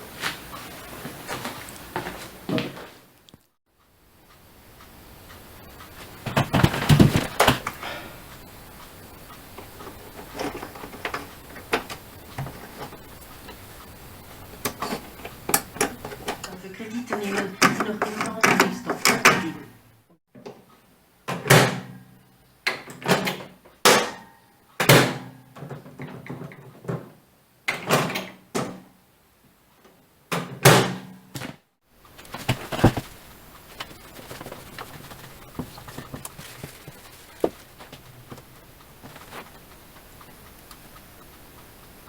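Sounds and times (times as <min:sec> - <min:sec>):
faint steady noise: 0:00.0 - 0:42.0
microwave door knocks and latch clacks: 0:21.3 - 0:22.0, 0:22.7 - 0:24.2, 0:24.8 - 0:25.3, 0:30.3 - 0:31.1.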